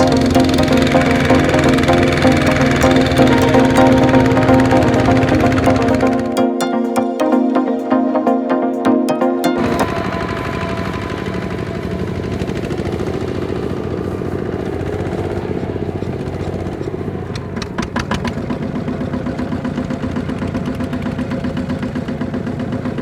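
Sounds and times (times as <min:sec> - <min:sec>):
tractor engine running: 0:00.0 - 0:07.5, 0:09.1 - 0:23.0.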